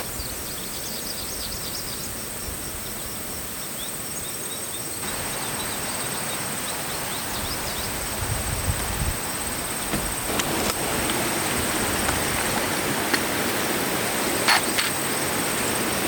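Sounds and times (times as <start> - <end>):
small birds chirping: 0.0 - 16.0
steady rushing hiss: 4.8 - 16.0.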